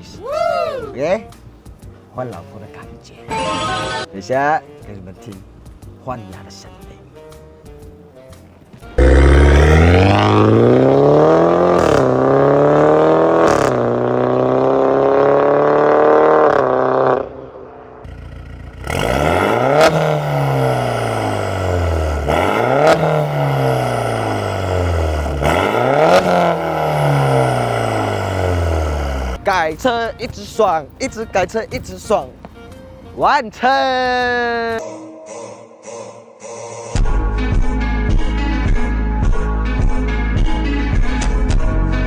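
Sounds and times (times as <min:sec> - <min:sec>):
car engine accelerating hard: 0:09.0 - 0:29.4.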